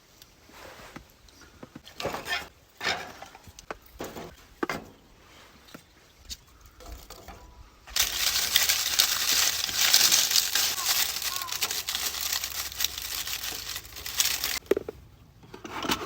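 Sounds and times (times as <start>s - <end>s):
loud continuous rustling: 7.9s - 14.6s.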